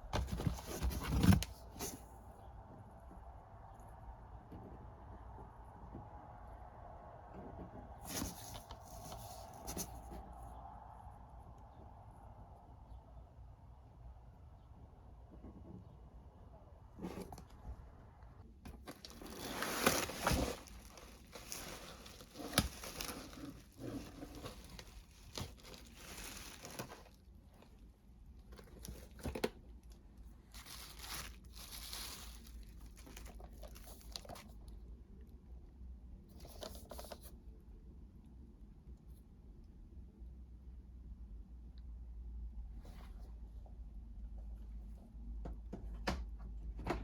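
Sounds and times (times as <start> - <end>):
packaging crinkling and tearing: 18.7 - 27.2, 30.5 - 34.5.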